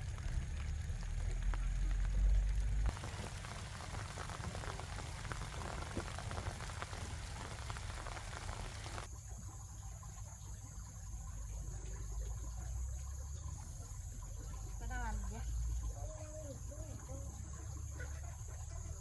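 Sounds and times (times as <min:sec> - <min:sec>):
water splashing onto plants: 0:00.0 - 0:09.1.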